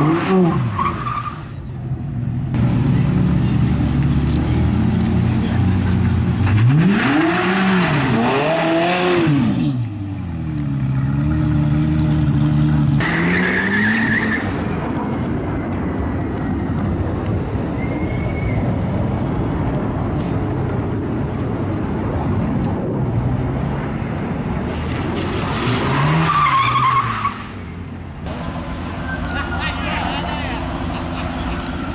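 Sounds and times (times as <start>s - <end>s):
race car engine revving: 2.6s - 9.9s.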